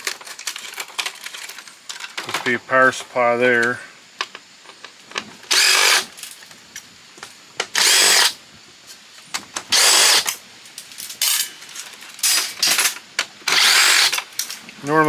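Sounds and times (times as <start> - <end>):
power drill whining in bursts: 5.5 - 6.2, 7.7 - 8.4, 9.7 - 10.4, 13.4 - 14.2.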